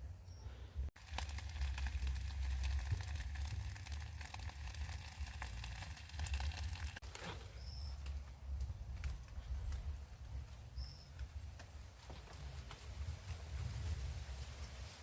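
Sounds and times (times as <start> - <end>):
sizzling: 1.0 - 7.0
fire crackling and popping: 1.0 - 7.1.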